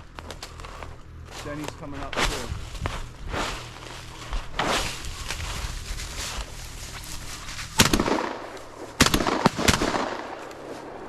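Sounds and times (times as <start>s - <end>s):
shotgun shots echoing: 7.8s - 11.0s.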